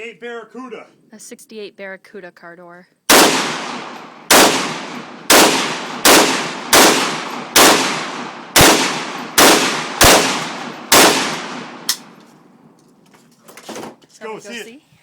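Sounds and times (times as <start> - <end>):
rifle shots with rolling echo: 3.1 - 12.6.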